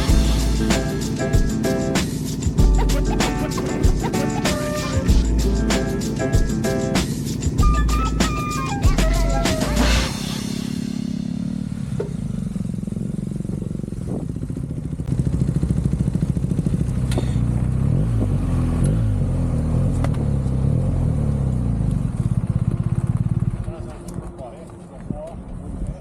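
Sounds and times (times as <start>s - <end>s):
motorcycle engine revving: 0.0s - 25.6s.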